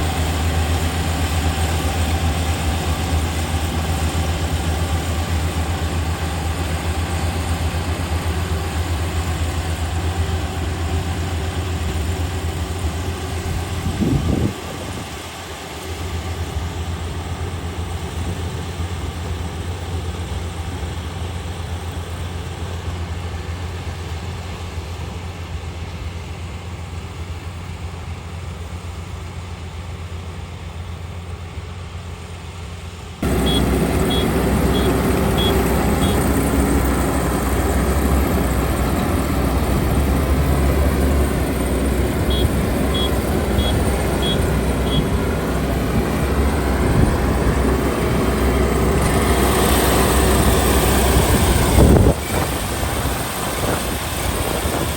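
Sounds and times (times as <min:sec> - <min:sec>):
combine harvester diesel engine: 0:00.0 - 0:54.9
short high electronic beeps: 0:33.4 - 0:36.3, 0:42.3 - 0:45.1.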